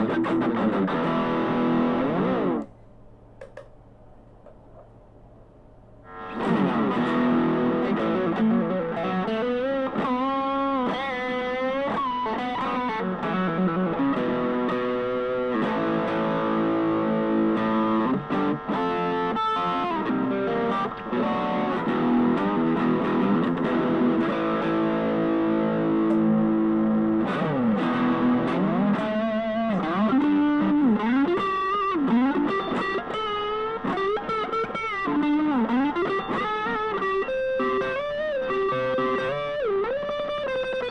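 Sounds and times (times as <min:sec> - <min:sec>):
distorted electric guitar lead: 0:00.0 - 0:02.7, 0:06.0 - 0:40.9.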